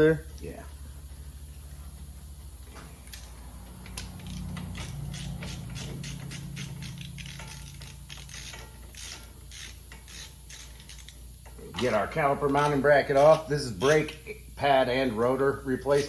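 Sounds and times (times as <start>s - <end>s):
steady low hum: 0.0s - 16.0s
hand ratchet clicking: 2.8s - 14.3s.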